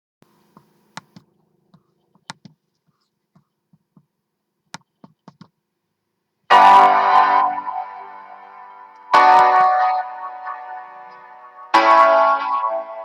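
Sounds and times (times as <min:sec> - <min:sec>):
computer keys clicking: 0:02.1 - 0:02.6, 0:04.7 - 0:05.5
loud music with held chord: 0:06.5 - 0:13.0.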